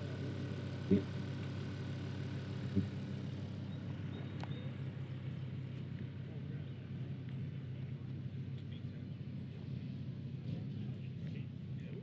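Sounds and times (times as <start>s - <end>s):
car engine idling: 0.0s - 9.5s.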